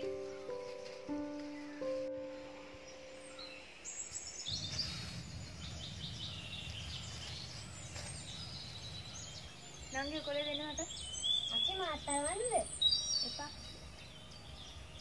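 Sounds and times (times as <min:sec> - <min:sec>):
background music: 0:00.0 - 0:04.4
small birds chirping: 0:00.0 - 0:15.0
low outdoor rumble: 0:03.9 - 0:15.0.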